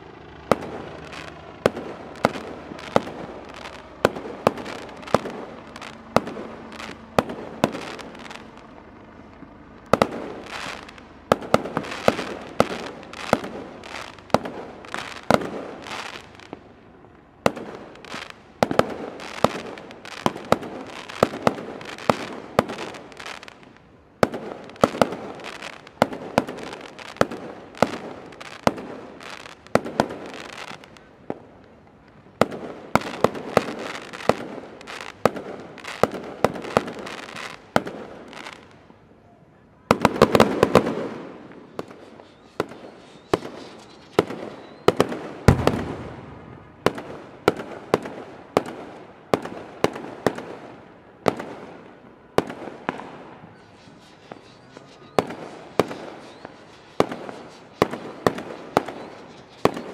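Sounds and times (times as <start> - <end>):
fireworks crackling: 0.0 - 39.2, 39.9 - 59.9
firework shells bursting: 39.9 - 48.8.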